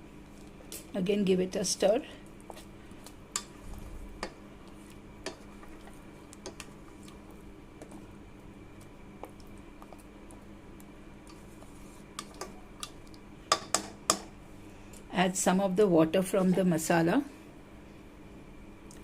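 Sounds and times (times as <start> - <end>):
faint steady hum: 0.0 - 19.0
spoon tapping a pan: 13.5 - 14.3.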